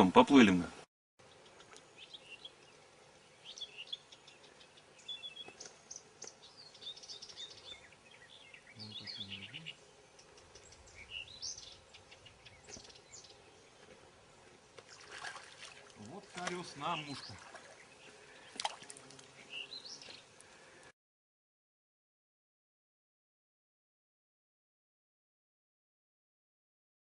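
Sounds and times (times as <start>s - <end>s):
small birds chirping and singing: 1.2s - 20.9s.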